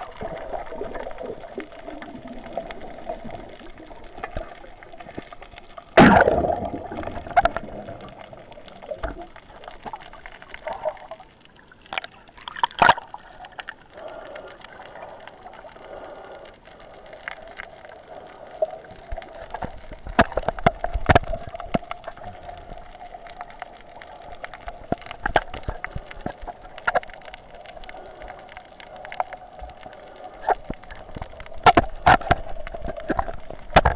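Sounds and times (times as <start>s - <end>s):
water gurgling underwater: 0.0s - 15.8s, 17.4s - 28.2s
faint steady hum: 0.0s - 33.9s.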